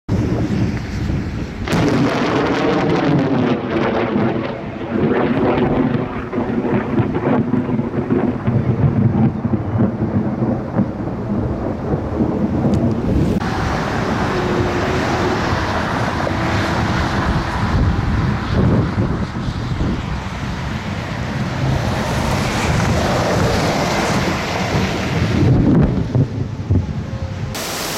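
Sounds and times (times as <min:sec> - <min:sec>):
thunder rumbling: 0:00.1 - 0:27.7
rain: 0:00.1 - 0:27.9
steady rushing hiss: 0:27.6 - 0:27.9.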